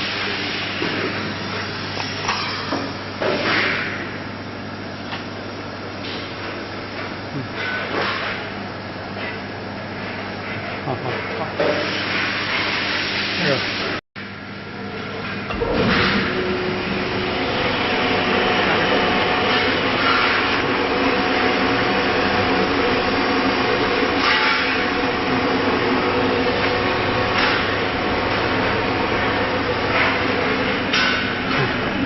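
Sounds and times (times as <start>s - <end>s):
vacuum pump humming: 8.4s - 32.0s.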